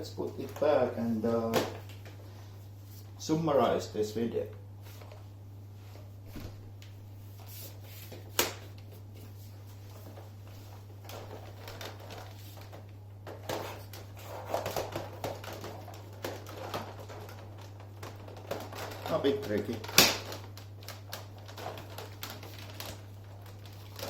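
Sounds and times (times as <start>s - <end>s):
steady low hum: 0.0s - 19.1s
plastic parts clicking and rattling: 11.0s - 24.0s.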